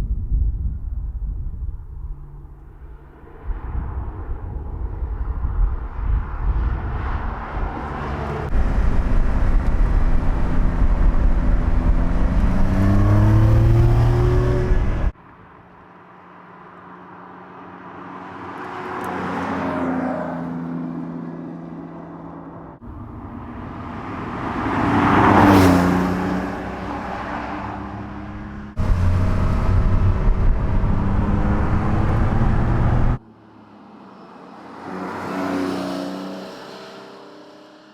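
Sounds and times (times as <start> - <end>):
car engine accelerating: 5.8 - 15.2, 22.8 - 33.2
car driving past: 5.9 - 15.1, 22.8 - 33.2.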